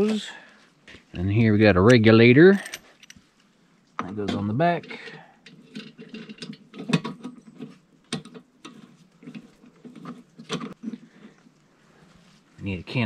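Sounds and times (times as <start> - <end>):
small parts clicking and rustling: 1.8 - 11.6.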